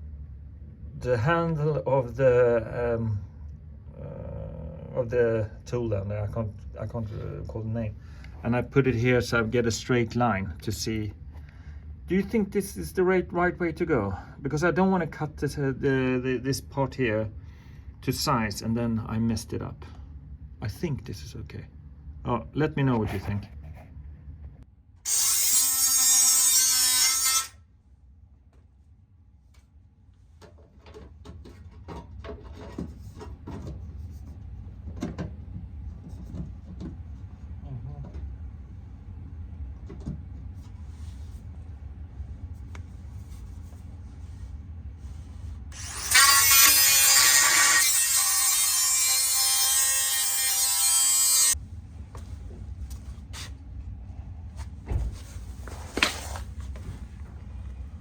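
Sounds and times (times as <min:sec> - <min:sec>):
angle grinder on steel: 0:25.1 - 0:27.6, 0:45.7 - 0:51.6
knocks and clatter of handling: 0:30.4 - 0:34.0.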